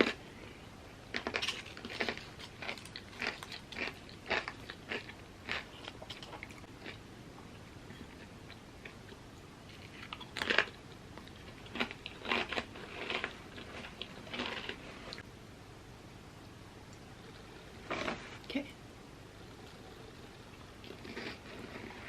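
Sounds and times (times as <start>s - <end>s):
crunchy chips being chewed: 0.0s - 0.2s, 1.1s - 7.0s, 8.0s - 15.2s, 20.6s - 22.0s.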